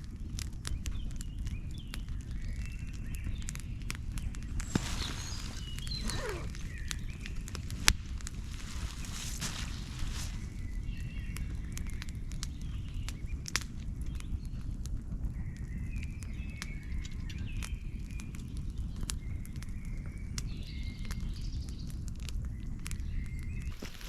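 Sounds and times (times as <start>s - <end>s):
steady low rumble: 0.0s - 15.4s.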